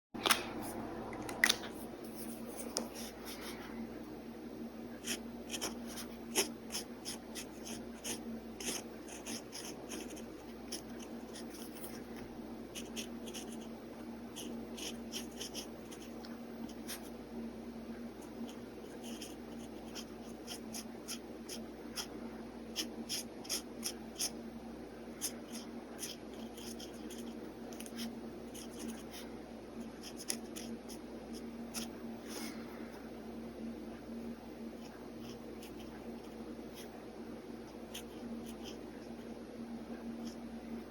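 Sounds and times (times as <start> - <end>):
faint steady hum: 0.2 - 40.9
pen scratching on paper: 5.0 - 13.7, 14.3 - 17.1, 18.2 - 22.1, 22.7 - 24.4, 25.2 - 29.2, 29.8 - 32.0, 34.8 - 37.0, 37.6 - 39.3.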